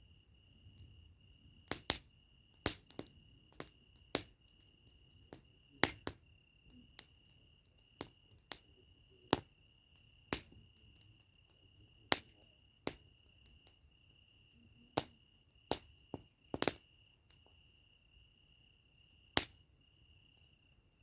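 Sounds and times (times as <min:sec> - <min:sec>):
campfire wood crackling: 0:00.0 - 0:21.0
sharp pops: 0:01.7 - 0:04.3, 0:09.3 - 0:10.7, 0:12.1 - 0:13.8, 0:15.0 - 0:17.5, 0:19.4 - 0:19.6.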